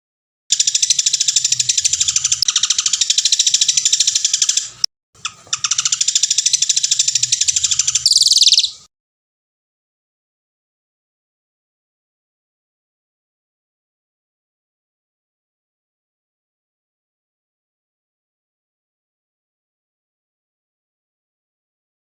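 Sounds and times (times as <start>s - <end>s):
songbird high-pitched trill: 0.5s - 4.9s, 5.6s - 8.9s.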